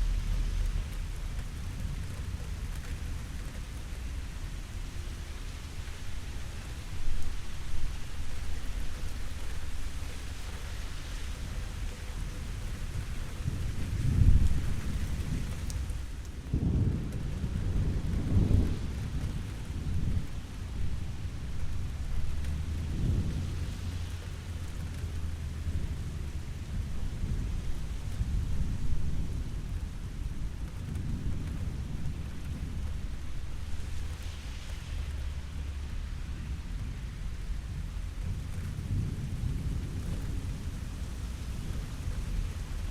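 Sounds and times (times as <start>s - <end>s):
steady rain: 0.0s - 42.9s
distant thunder rumbling: 13.3s - 42.9s.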